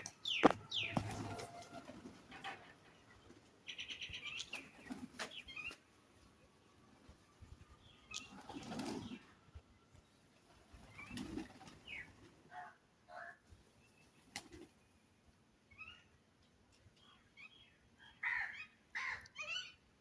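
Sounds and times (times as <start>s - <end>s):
birds calling: 0.0s - 5.8s, 10.5s - 13.3s.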